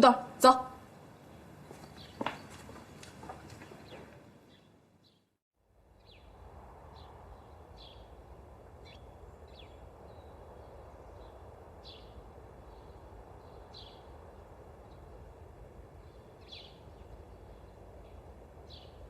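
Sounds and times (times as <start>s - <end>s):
small birds chirping: 1.1s - 5.3s, 6.0s - 8.2s, 8.8s - 15.2s, 15.9s - 19.0s.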